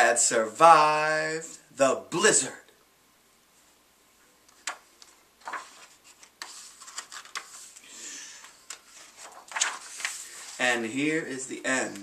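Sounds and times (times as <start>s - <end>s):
book pages rustling: 4.5s - 10.8s.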